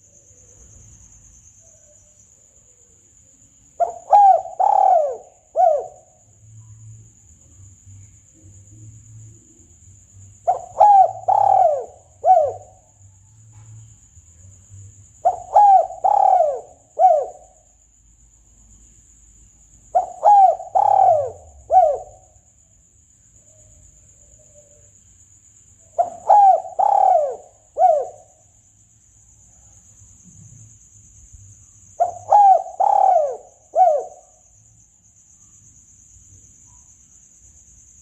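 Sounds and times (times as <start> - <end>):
dove cooing: 3.8 - 6.1, 10.4 - 12.9, 15.2 - 17.6, 19.9 - 22.2, 26.0 - 28.4, 32.0 - 34.3.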